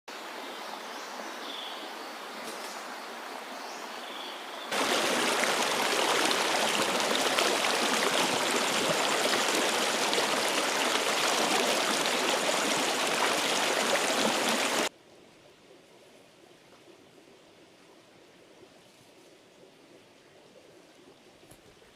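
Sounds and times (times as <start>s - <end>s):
river water rushing: 4.7s - 14.9s.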